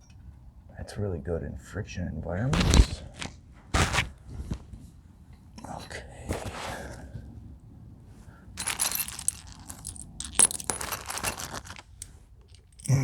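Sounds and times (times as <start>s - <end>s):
metal hardware parts clinking: 8.6s - 13.0s.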